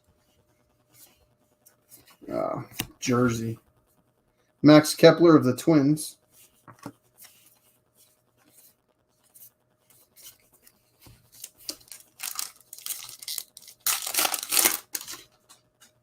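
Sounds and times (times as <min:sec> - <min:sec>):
wrapper tearing and crinkling: 0:11.3 - 0:15.3.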